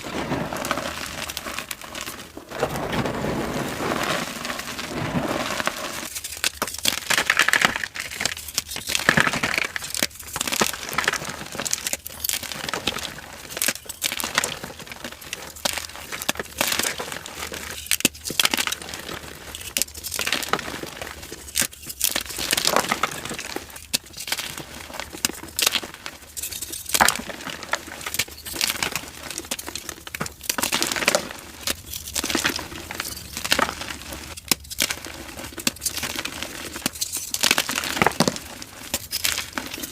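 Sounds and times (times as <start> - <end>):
chalk crunching and crackling: 0.0 - 14.3.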